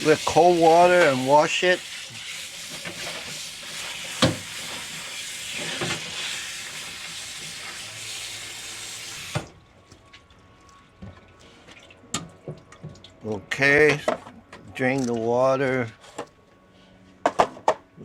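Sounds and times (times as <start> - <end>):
kitchen tap running into sink: 0.0 - 9.5.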